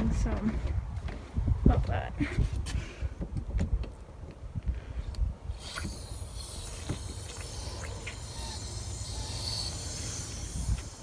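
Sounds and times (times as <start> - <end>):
wind rumble: 0.0 - 11.0
hose spraying water: 5.5 - 11.0.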